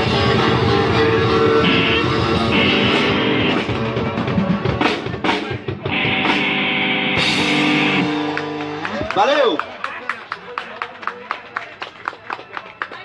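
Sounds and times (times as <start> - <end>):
live band playing: 0.0 - 9.6
drum hits: 2.2 - 8.4.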